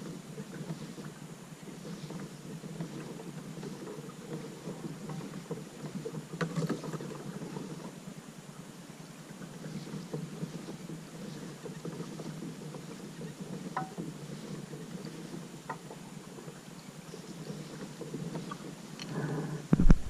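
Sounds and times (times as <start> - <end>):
water around kayak: 0.0 - 20.0.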